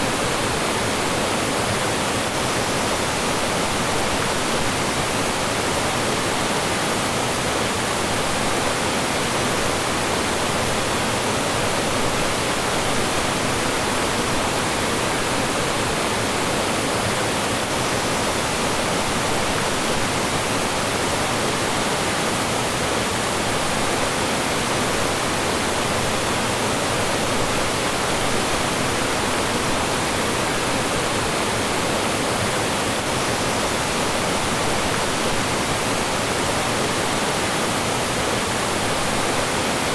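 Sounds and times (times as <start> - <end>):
stream rushing water: 0.0 - 39.9.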